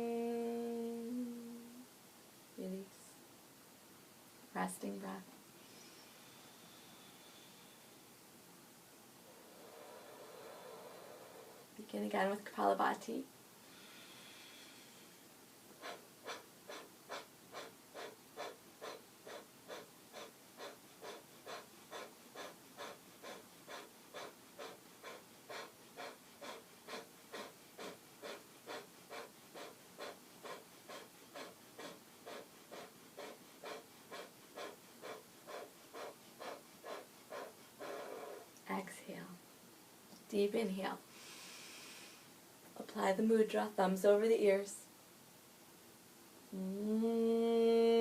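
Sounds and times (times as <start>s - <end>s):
sharp nasal exhalations: 15.8s - 38.6s, 41.1s - 42.3s.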